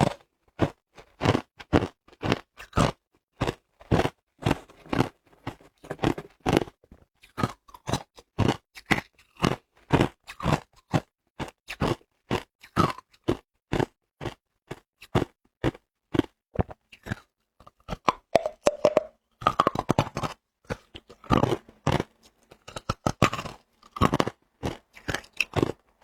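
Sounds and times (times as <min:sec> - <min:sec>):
person chewing ice crunching: 0:00.0 - 0:26.0.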